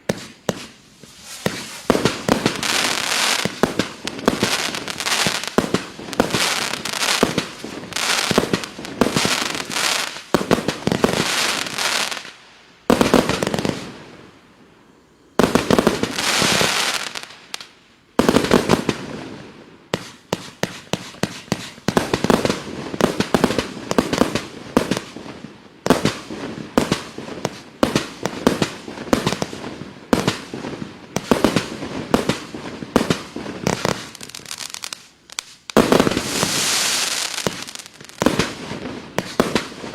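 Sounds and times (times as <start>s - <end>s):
firework barrage bangs: 0.0s - 11.8s, 35.8s - 39.9s.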